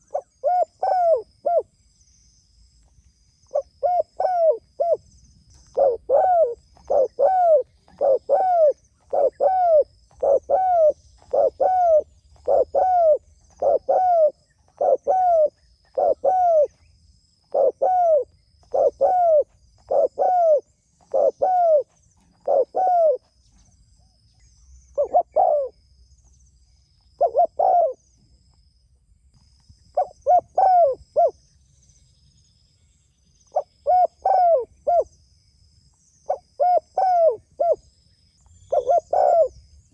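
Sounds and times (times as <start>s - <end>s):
dove cooing: 0.0s - 1.7s, 3.5s - 5.0s, 5.6s - 16.8s, 17.4s - 23.3s, 25.0s - 25.8s, 27.2s - 28.0s, 30.0s - 31.3s, 33.5s - 35.1s, 36.3s - 37.8s, 38.7s - 39.6s.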